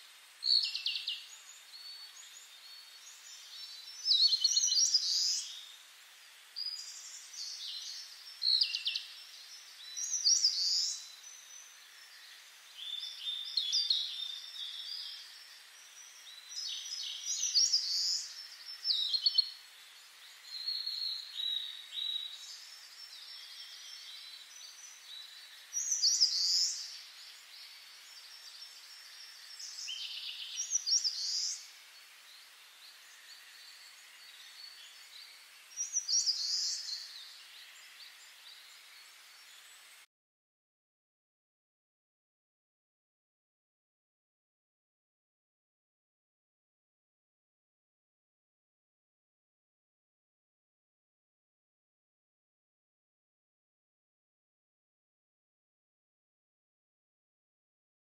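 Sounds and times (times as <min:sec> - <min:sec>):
faint steady hiss: 0:00.0 - 0:40.1
songbirds singing: 0:00.0 - 0:40.1.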